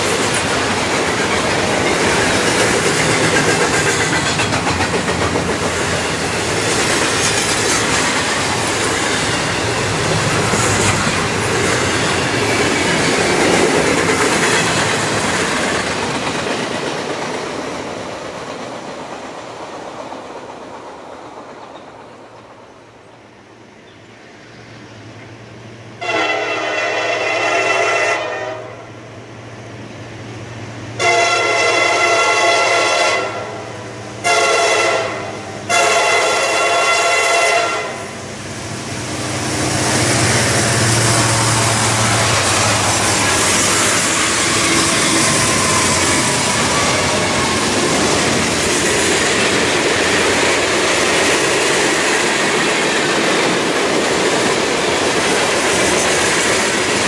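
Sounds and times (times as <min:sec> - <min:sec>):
steel wheels on rail: 0:00.0 - 0:23.3, 0:23.9 - 0:57.0
train horn blasts: 0:26.0 - 0:29.0, 0:31.0 - 0:38.2.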